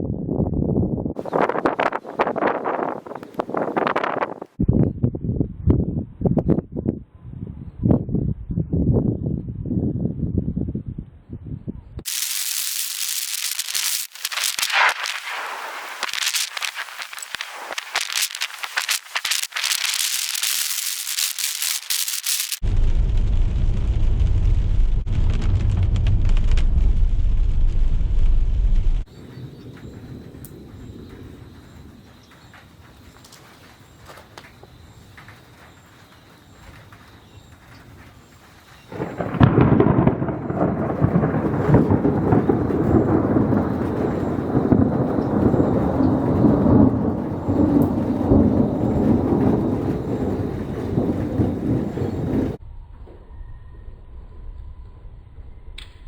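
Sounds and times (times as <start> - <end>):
deep thunder rumble: 11.4 - 55.8
faint hiss: 12.1 - 22.6.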